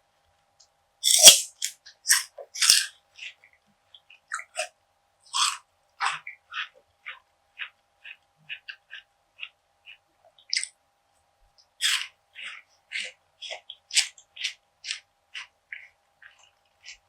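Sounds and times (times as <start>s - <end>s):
crunchy bites and chewing: 1.0s - 2.9s.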